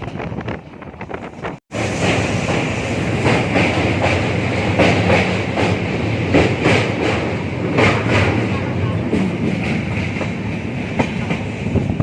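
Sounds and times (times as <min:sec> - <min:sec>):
wind over microphone: 0:00.0 - 0:01.6, 0:10.9 - 0:12.0
train wheels rumbling on rail: 0:00.0 - 0:12.0.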